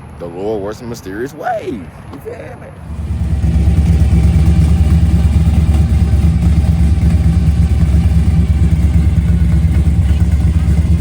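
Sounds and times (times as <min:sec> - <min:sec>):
car engine idling loudly: 0:02.9 - 0:11.0.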